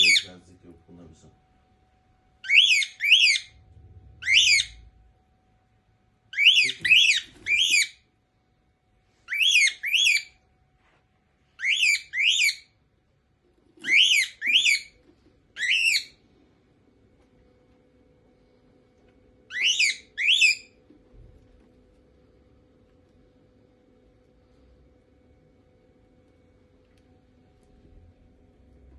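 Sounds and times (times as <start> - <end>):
cockatiel whistling: 2.4 - 3.6, 4.2 - 4.9, 6.3 - 8.0, 9.3 - 10.4, 11.6 - 12.7, 13.8 - 15.0, 15.6 - 16.2, 19.5 - 20.8.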